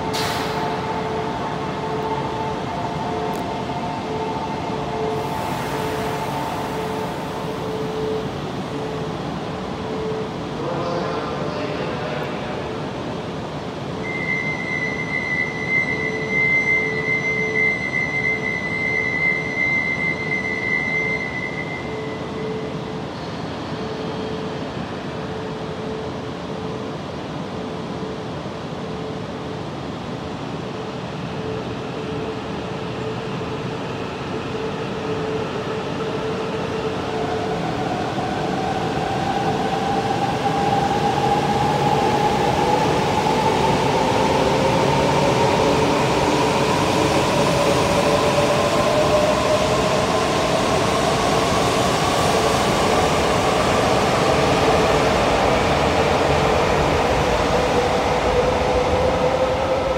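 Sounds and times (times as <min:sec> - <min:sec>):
train traction motor whine: 0:00.0 - 0:10.6
steady train hum: 0:00.0 - 0:59.9.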